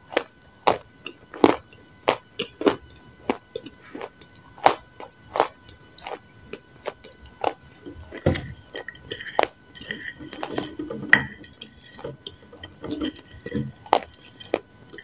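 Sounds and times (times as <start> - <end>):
crunchy biting and chewing: 0.0 - 15.0.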